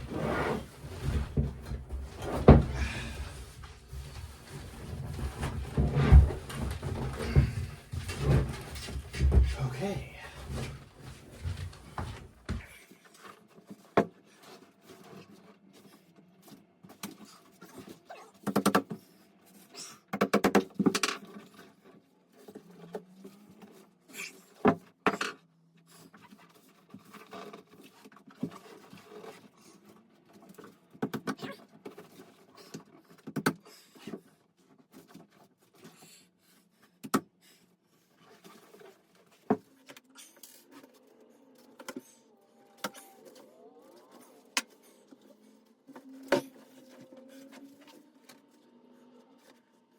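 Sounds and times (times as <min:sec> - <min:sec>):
material rustling: 0:00.0 - 0:12.7.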